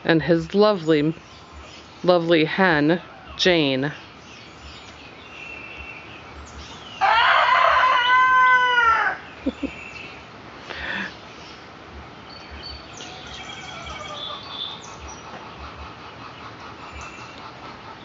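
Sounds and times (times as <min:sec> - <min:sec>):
rooster crowing: 0:07.0 - 0:09.3, 0:13.1 - 0:14.6.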